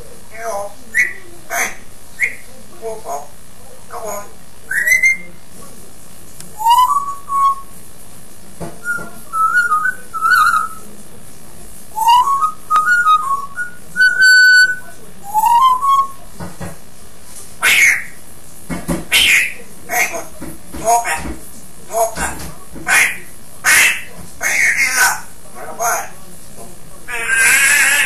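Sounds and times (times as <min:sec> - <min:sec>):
parrot whistling: 0:00.3 - 0:03.2, 0:04.0 - 0:05.3, 0:06.6 - 0:07.7, 0:08.8 - 0:10.8, 0:12.0 - 0:16.2, 0:17.6 - 0:18.2, 0:19.1 - 0:20.3, 0:22.9 - 0:26.1.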